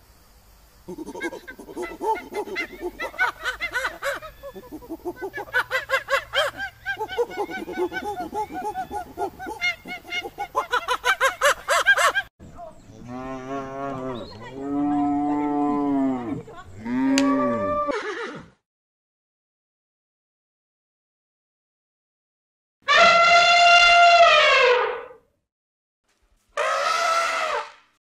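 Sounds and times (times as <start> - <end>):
monkey chattering: 0.9 - 12.2.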